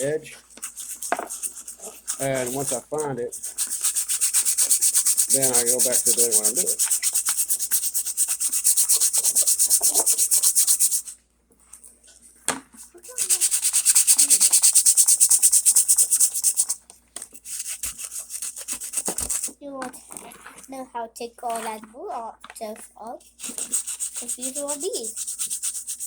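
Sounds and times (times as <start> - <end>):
sandpaper scraping filler: 0.0 - 11.1, 13.1 - 16.8, 17.4 - 19.5, 23.4 - 26.0.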